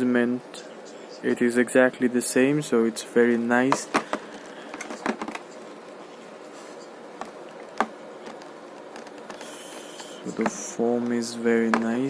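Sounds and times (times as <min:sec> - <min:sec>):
faint room hum: 0:00.0 - 0:12.0
headphones clicking and tapping: 0:03.7 - 0:05.7, 0:07.2 - 0:12.0.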